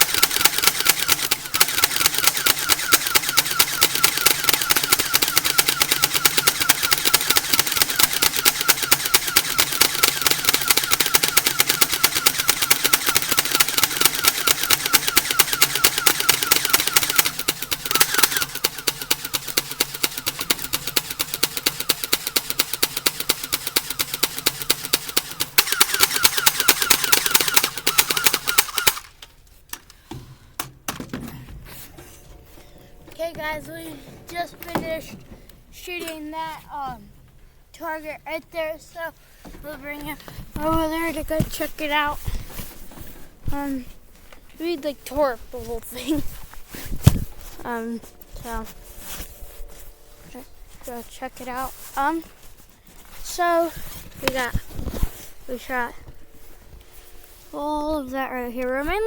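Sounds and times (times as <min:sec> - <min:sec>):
single airsoft shots: 0:00.0 - 0:29.1
airsoft guns rapid fire: 0:00.0 - 0:29.3.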